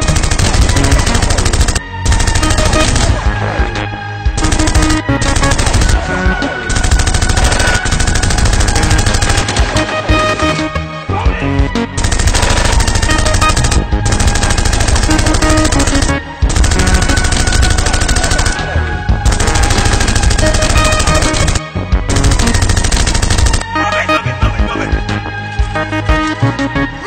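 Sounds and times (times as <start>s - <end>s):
automatic gunfire bursts: 0.0s - 3.3s, 4.4s - 10.6s, 12.0s - 18.7s, 19.3s - 23.7s
background music: 0.0s - 27.0s.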